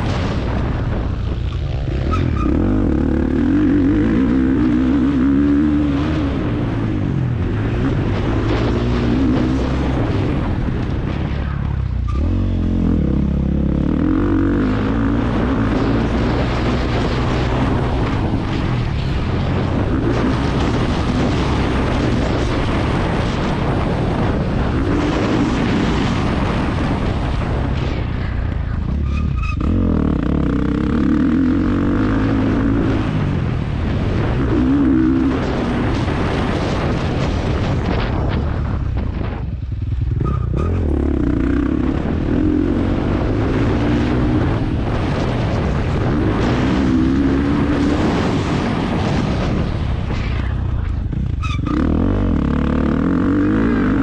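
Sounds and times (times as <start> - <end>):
motocross bike engine revving: 1.5 - 11.0, 11.6 - 27.6, 28.9 - 37.4, 40.0 - 49.6, 51.1 - 54.0.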